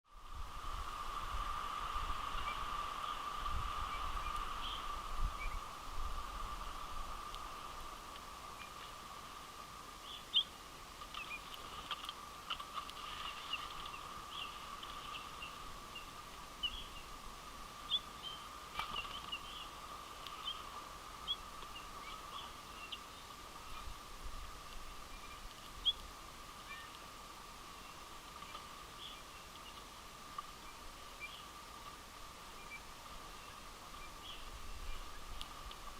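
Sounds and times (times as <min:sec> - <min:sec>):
faint steady hum: 0:00.1 - 0:35.9
finches chirping: 0:03.8 - 0:05.7, 0:10.0 - 0:11.6, 0:13.2 - 0:17.1, 0:17.8 - 0:24.0, 0:24.8 - 0:26.0, 0:26.6 - 0:27.1, 0:30.5 - 0:31.6, 0:32.5 - 0:35.4.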